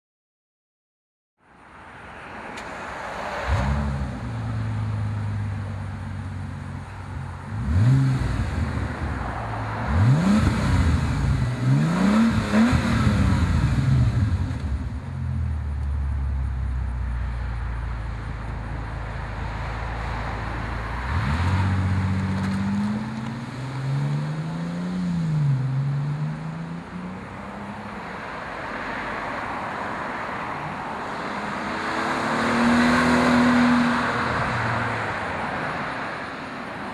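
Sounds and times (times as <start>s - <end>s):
car engine revving and idling: 3.4s - 28.3s.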